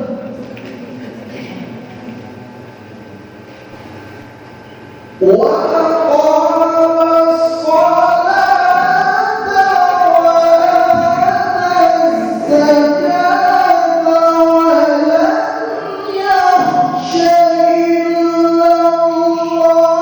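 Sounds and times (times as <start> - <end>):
man reciting melodically: 0.0 - 0.4, 5.1 - 20.0.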